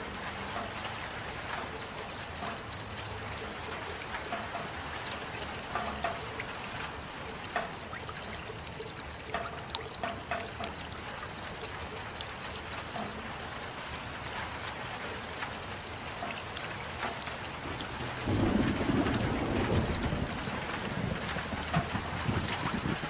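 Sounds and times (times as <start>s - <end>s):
drips and splashes: 0.0s - 23.0s
rain falling: 0.0s - 23.0s.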